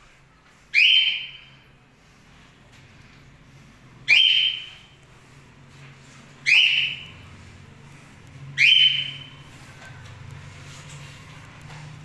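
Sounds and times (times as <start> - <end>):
bird's shrill call: 6.4 - 7.1.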